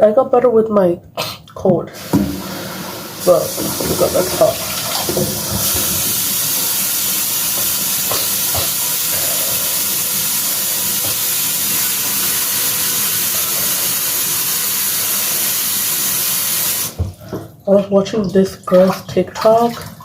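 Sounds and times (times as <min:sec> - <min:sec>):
water pouring into container: 0:02.0 - 0:17.0.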